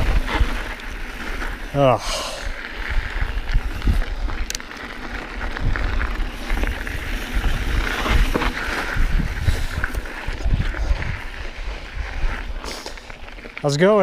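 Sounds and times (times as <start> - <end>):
wind buffeting microphone: 0.0 - 13.2
bike frame rattling: 0.0 - 13.8
bike tyres on dirt and gravel: 0.0 - 14.0.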